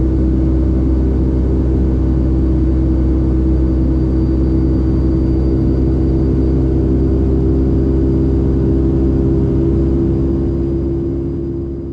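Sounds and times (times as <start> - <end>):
jet engines and airflow: 0.0 - 11.9.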